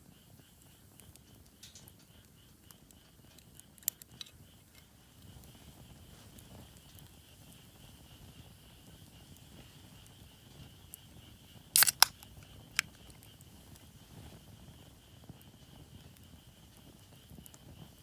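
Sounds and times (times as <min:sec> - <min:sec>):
sharp wood cracks: 0:11.8 - 0:12.2.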